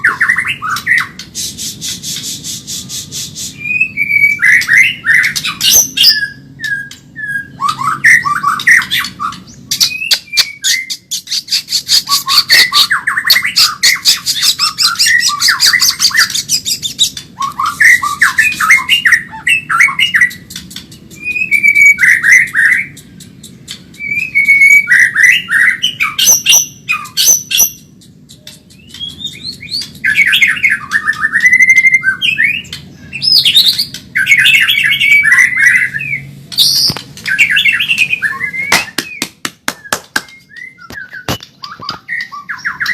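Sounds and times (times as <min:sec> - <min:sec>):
bird whistled phrases: 0:00.0 - 0:42.9
bird clicking rattles: 0:20.2 - 0:21.5, 0:22.3 - 0:24.5, 0:27.9 - 0:30.0.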